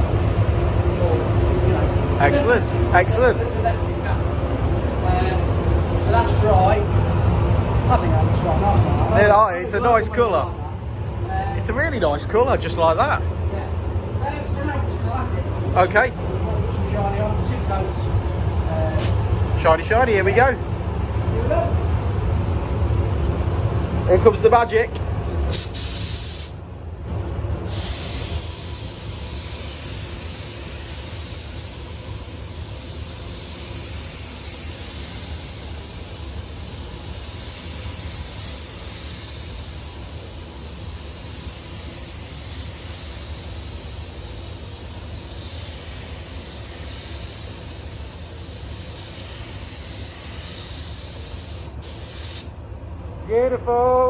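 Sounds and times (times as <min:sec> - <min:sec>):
spray gun hissing: 0:25.5 - 0:26.6, 0:27.6 - 0:52.6.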